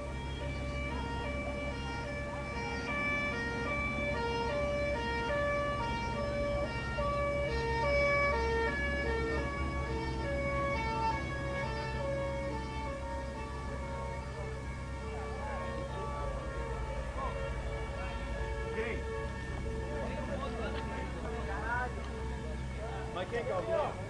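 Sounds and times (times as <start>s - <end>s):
two-tone siren: 0.0s - 24.0s.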